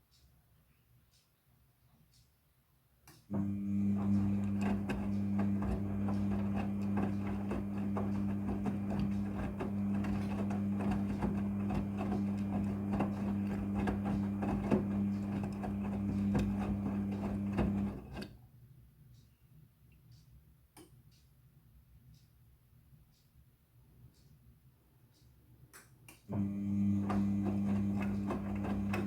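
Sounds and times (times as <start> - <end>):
washing machine electric hum: 3.3 - 18.5, 26.3 - 29.0.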